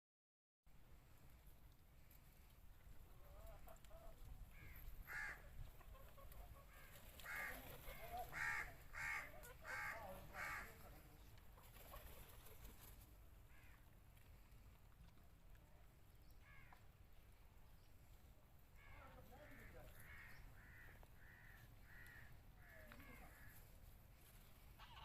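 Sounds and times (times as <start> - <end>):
harsh bird calls: 18.8 - 23.5.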